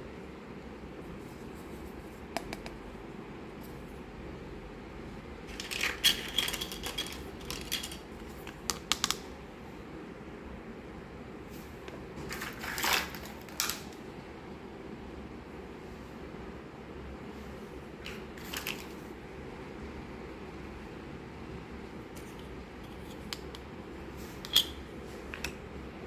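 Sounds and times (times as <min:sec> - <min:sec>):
steady low hum: 0:00.0 - 0:26.0
small toy pieces clicking and clinking: 0:05.5 - 0:08.0.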